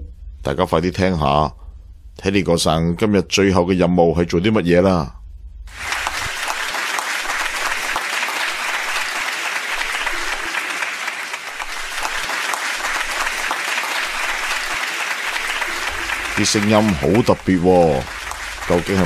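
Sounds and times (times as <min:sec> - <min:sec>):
crowd applauding: 0:05.7 - 0:19.0.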